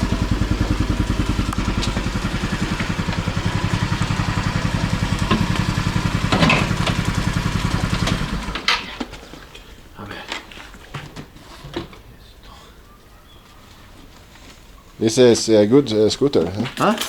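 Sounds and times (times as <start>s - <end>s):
scooter engine idling: 0.0s - 9.1s.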